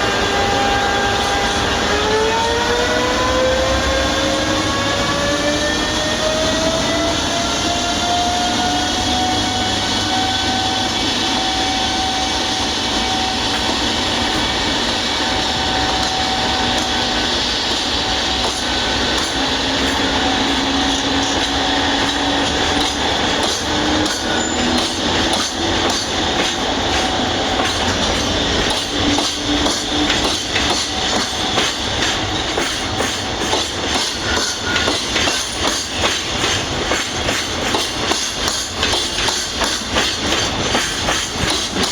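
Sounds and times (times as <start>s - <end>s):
freight train whine: 0.0s - 41.9s
train wheels clickety-clack: 0.0s - 41.9s.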